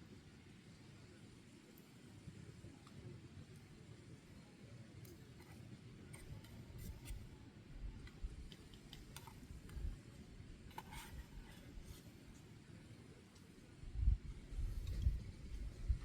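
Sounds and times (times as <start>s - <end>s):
faint clicks and ticks: 8.0s - 12.6s.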